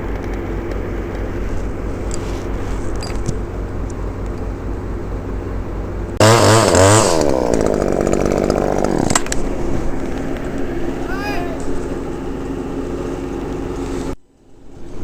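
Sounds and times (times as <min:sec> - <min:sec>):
low engine hum: 0:00.0 - 0:15.0
chainsaw revving: 0:06.2 - 0:14.2.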